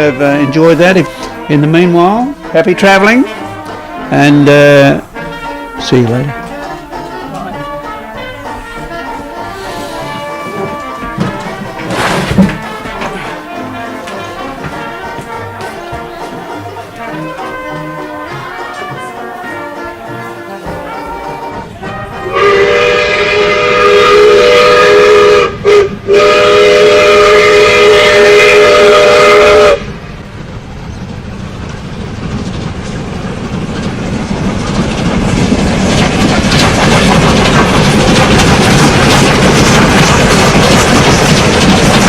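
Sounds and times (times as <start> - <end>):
train rumble and rail clatter: 0.0 - 42.0
train whistle blasts: 17.0 - 29.9.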